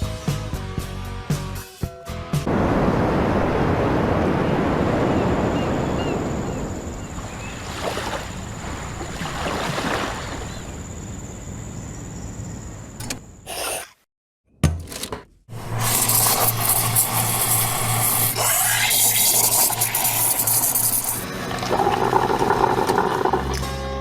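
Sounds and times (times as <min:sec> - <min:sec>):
sea waves washing in: 0:02.5 - 0:11.1
wind: 0:02.5 - 0:14.0.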